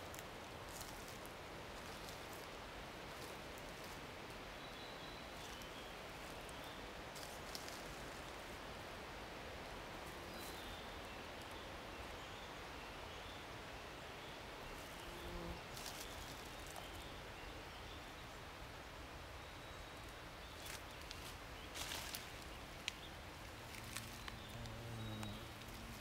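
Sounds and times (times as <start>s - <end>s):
light rain hissing: 20.6s - 26.0s.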